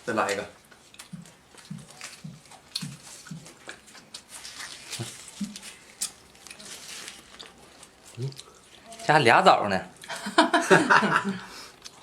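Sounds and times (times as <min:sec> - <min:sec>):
leaf wrapper crinkling: 0:00.0 - 0:09.4
lip-smacking and chewing: 0:00.6 - 0:08.9, 0:11.7 - 0:12.0.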